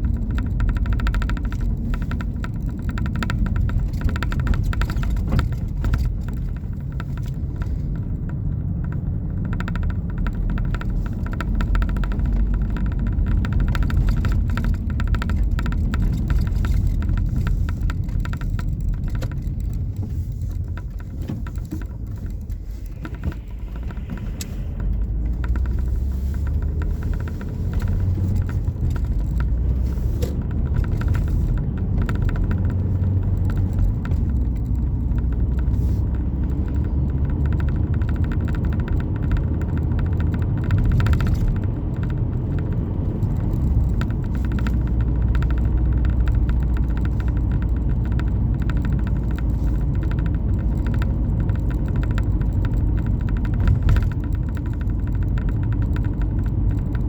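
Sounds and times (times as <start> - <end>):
car driving low rumble: 0.0 - 57.0
faint clicks and crackle: 0.0 - 57.0.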